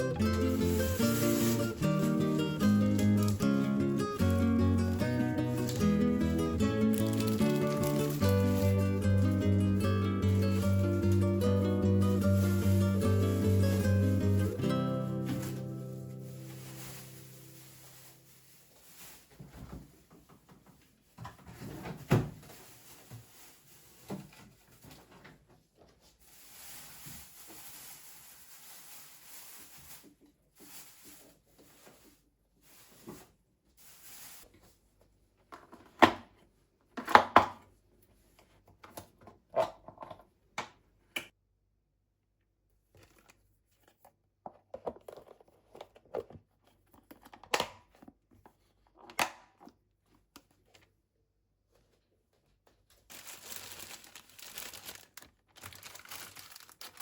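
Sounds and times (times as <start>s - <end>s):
soft rustling: 12.3s - 20.2s.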